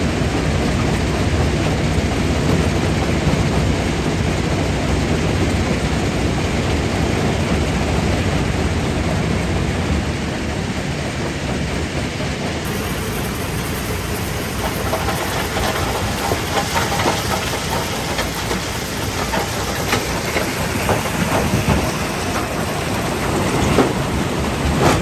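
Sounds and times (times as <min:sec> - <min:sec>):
jaw crusher rumbling: 0:12.6 - 0:25.0.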